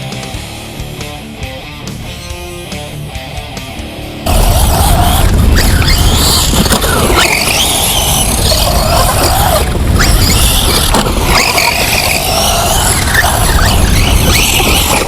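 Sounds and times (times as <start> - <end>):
electric motor whine: 4.3 - 15.0.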